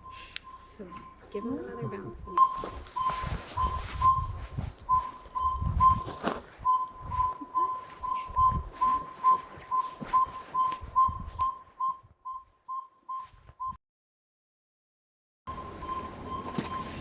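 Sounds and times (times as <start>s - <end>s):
owl whistled toots: 2.4s - 11.6s.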